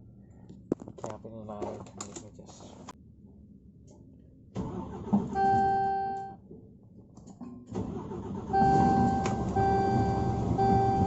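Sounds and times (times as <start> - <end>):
dashboard warning buzzer beeping: 5.4 - 6.3, 8.5 - 11.0
truck engine: 7.7 - 11.0.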